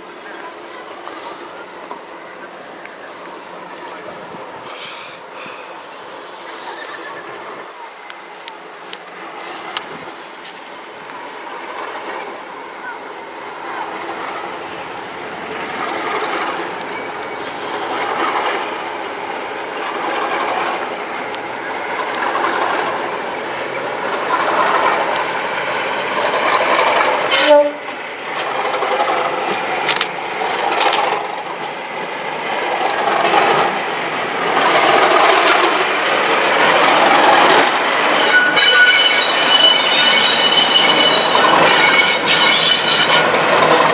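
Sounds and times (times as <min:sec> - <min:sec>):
diesel locomotive engine working hard: 0:00.0 - 0:43.9
wheels clattering over rail joints: 0:09.4 - 0:32.0, 0:34.4 - 0:43.9.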